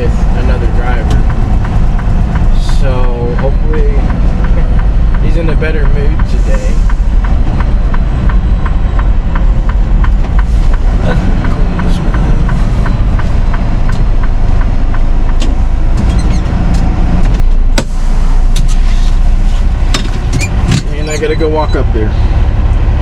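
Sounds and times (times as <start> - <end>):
rapid even ticking: 0.0 - 17.7
diesel truck engine rumbling: 0.0 - 23.0.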